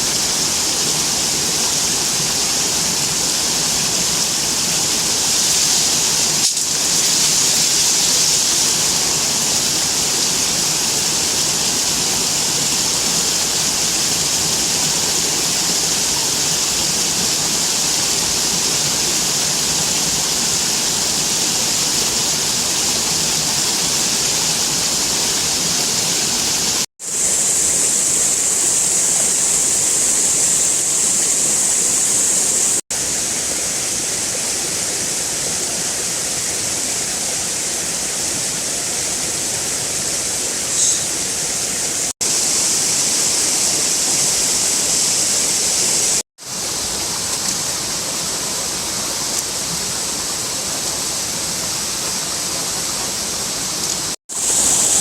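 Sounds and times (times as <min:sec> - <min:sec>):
steady rushing hiss: 0:00.0 - 0:55.0.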